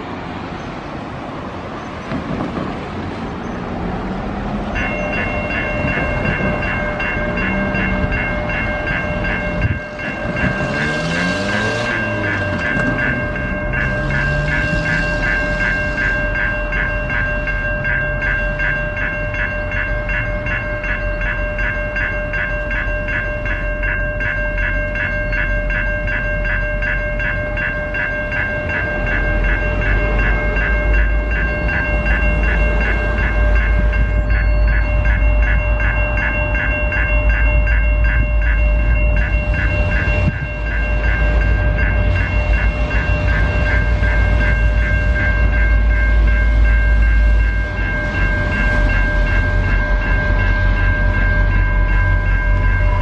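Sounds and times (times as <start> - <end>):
level crossing warning bell: 0.0 - 53.0
train rumbling past: 0.0 - 53.0.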